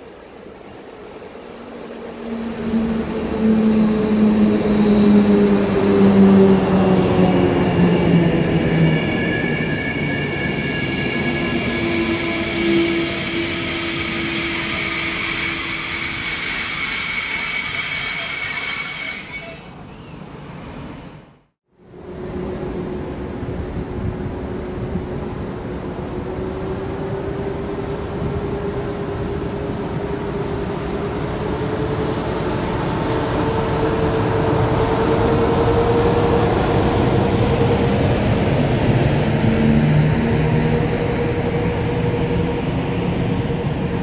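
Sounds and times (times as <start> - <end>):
high-pitched brake squeal: 6.6 - 20.3.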